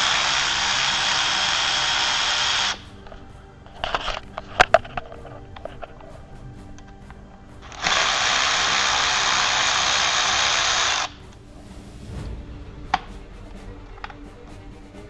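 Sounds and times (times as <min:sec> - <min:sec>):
power tool running: 0:00.0 - 0:03.0, 0:07.6 - 0:11.2
background music: 0:00.0 - 0:15.0.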